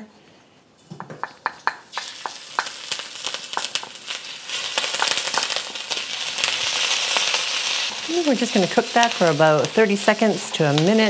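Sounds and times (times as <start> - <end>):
garlic sizzling in oil: 1.7 - 11.0.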